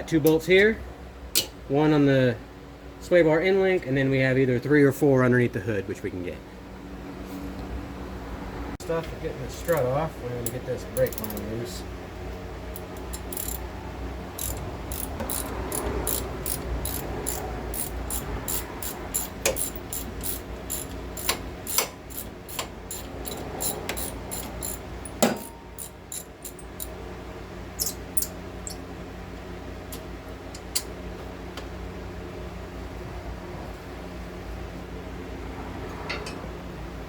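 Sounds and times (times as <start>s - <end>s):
steady low hum: 0.0s - 37.0s
ratchet wrench clicking: 11.0s - 11.5s, 12.7s - 13.7s, 14.4s - 26.9s
sharp metallic knock: 25.2s - 25.7s.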